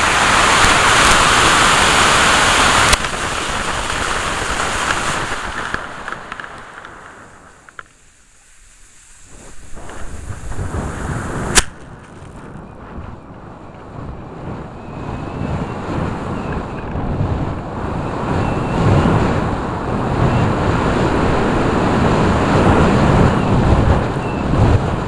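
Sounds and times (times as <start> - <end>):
rocket motor thrust roar: 0.0 - 12.4
wind noise on microphone: 0.0 - 25.0
sharp pop: 11.5 - 11.9.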